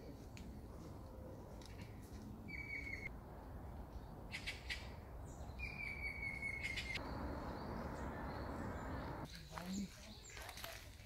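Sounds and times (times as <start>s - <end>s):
songbird whistling long notes: 5.6s - 9.2s.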